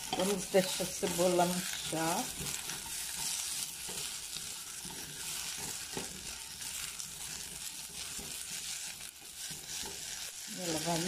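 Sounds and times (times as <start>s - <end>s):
sausage and onion sizzling: 0.0s - 11.0s
spatula scraping and knocking pot: 0.0s - 11.0s.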